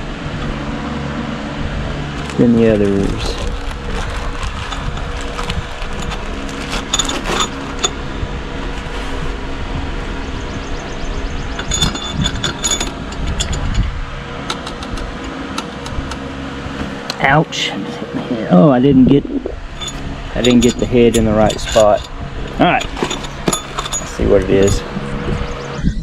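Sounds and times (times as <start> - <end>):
steady mechanical hum: 0.0 - 26.0
metal bolts clinking: 11.6 - 13.8, 19.7 - 24.9.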